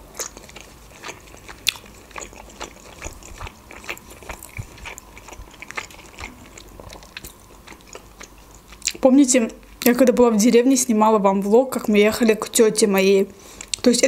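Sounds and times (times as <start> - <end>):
mouth chewing clicks and smacks: 0.1 - 9.0.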